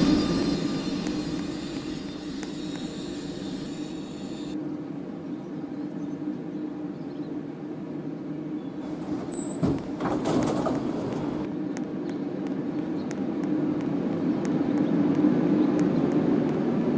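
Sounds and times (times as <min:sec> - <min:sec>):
high electric whine: 0:00.0 - 0:04.6
electric train humming: 0:00.0 - 0:05.2, 0:08.7 - 0:11.5.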